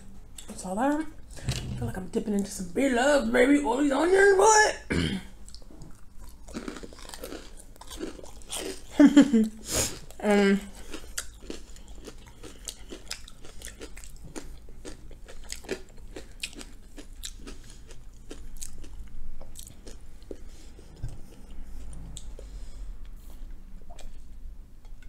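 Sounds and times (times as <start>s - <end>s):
chewing with wet mouth clicks: 5.4s - 10.2s, 10.8s - 20.4s, 23.9s - 25.0s.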